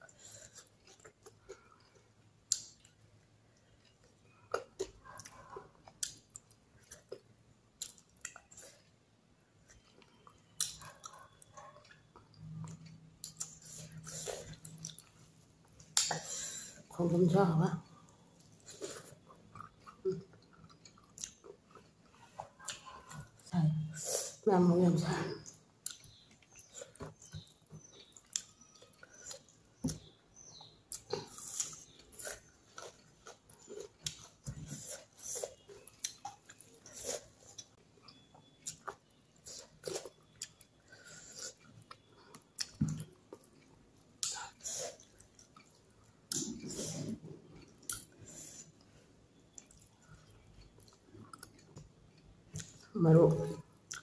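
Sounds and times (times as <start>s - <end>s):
chewing and lip smacking: 9.6s - 16.2s, 17.8s - 23.5s, 25.4s - 52.9s, 53.7s - 54.0s.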